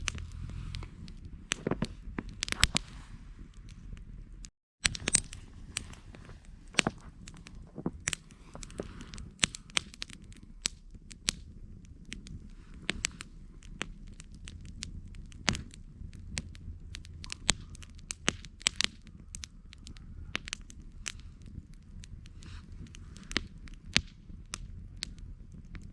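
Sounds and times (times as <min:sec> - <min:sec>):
campfire crackling and popping: 0:00.0 - 0:25.9
low rumble of flames: 0:00.0 - 0:25.9.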